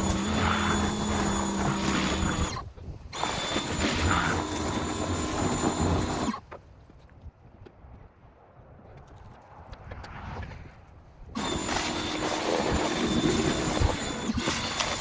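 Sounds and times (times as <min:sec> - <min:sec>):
pressure washer spraying: 0:11.4 - 0:15.0.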